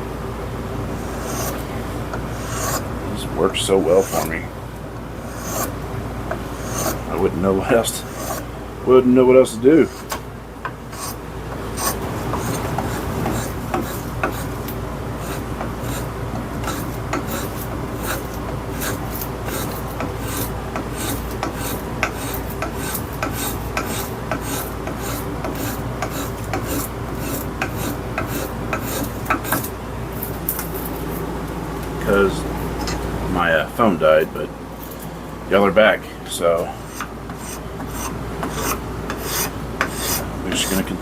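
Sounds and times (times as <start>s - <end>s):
spokeshave scraping wood: 0.9s - 2.9s, 3.5s - 4.4s, 5.3s - 8.5s, 9.7s - 10.2s, 10.9s - 31.3s, 36.5s - 41.0s.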